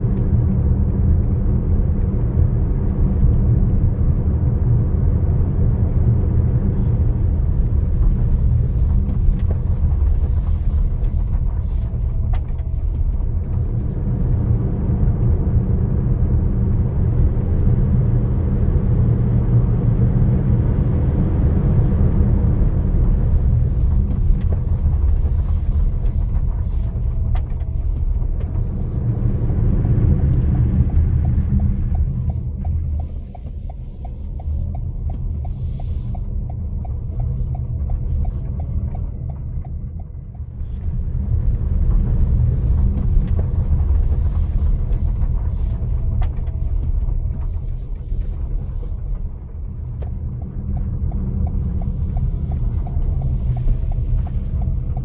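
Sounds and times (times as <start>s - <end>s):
loud low rumble: 0.0s - 55.0s.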